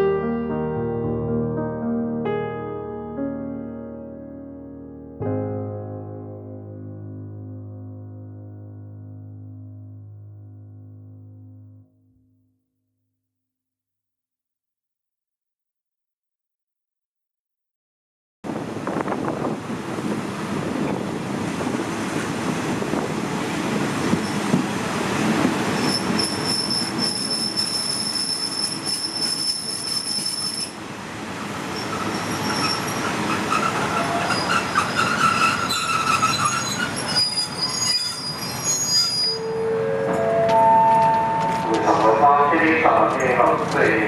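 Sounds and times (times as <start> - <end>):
train rumbling clatter on rails: 18.5 - 39.1, 40.1 - 44.0
wheel and brake squeal: 25.7 - 30.8, 31.6 - 40.2.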